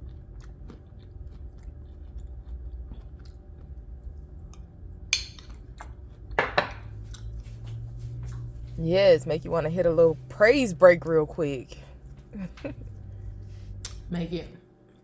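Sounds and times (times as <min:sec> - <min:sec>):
person chewing crunchy cereal: 0:00.0 - 0:08.8.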